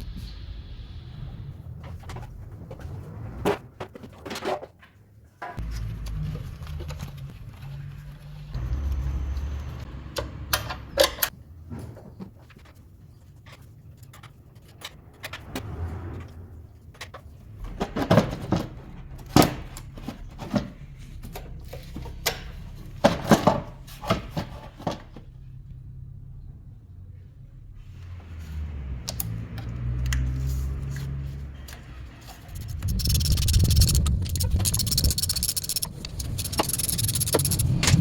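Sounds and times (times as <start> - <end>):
steady low hum: 32.4 - 38.0.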